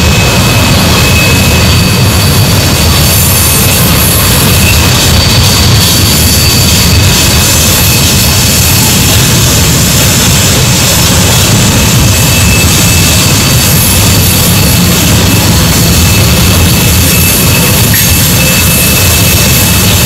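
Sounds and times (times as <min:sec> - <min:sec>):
wheel squeal: 0:00.0 - 0:20.0.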